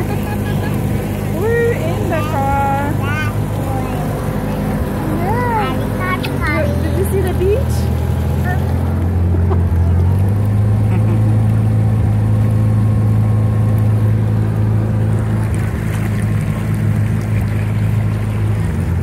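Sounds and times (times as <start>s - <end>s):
car engine running low hum: 0.0s - 19.0s.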